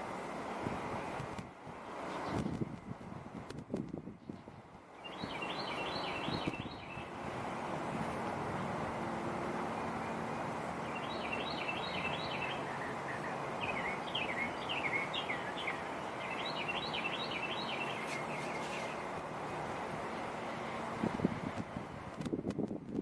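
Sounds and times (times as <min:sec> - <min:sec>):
songbirds chirping: 0:04.2 - 0:21.0.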